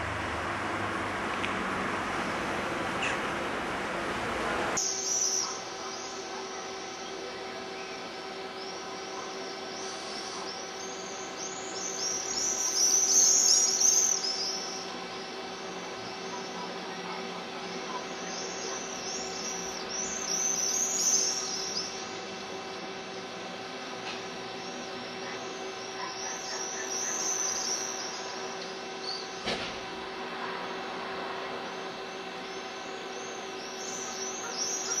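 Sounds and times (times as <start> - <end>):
steady hum: 0.0 - 35.0.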